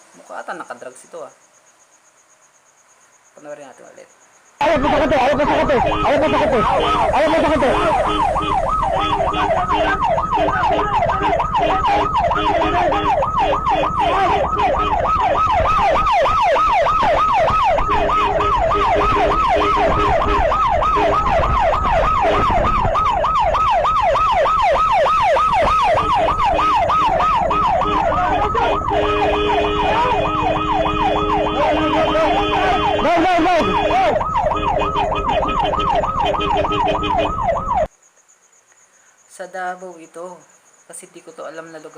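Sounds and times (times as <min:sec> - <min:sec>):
police siren yelp: 0:04.6 - 0:37.9.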